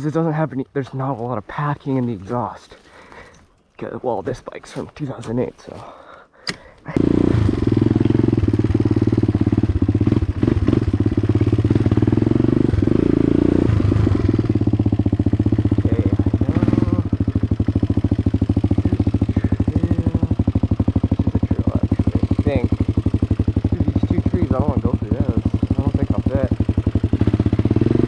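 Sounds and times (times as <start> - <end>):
dirt bike engine running loud: 7.0 - 28.0.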